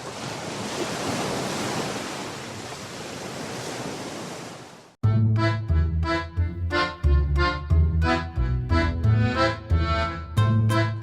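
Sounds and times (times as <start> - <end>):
accordion music: 5.0 - 11.0.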